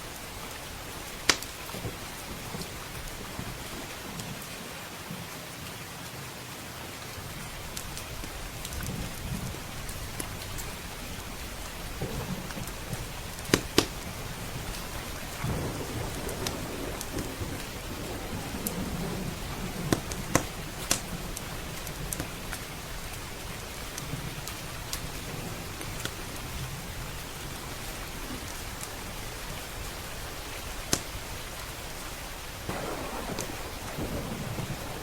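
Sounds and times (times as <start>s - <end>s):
heavy rain: 0.0s - 35.0s
wood fire crackling and popping: 0.1s - 4.4s, 11.6s - 25.2s, 30.1s - 31.8s, 32.6s - 35.0s
low thunder rolling: 8.8s - 30.5s, 32.6s - 35.0s.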